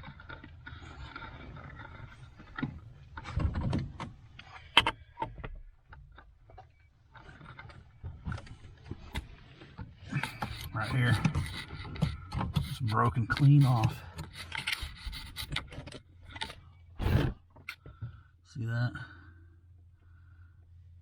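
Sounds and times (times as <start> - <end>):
handling knocks and clicks: 0.0 - 16.6.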